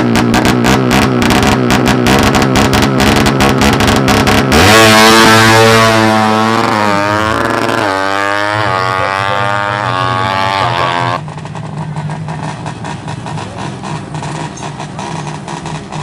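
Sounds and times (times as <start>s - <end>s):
motorcycle accelerating through gears: 0.0s - 16.0s
steady engine drone: 0.0s - 16.0s.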